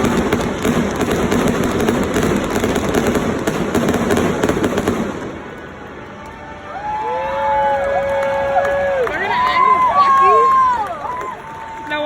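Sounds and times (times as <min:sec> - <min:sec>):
fireworks bangs and crackles: 0:00.0 - 0:05.9.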